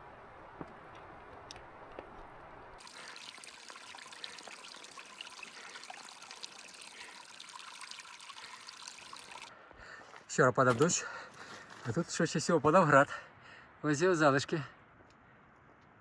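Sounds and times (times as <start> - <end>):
water trickling over stones: 2.8 - 9.5.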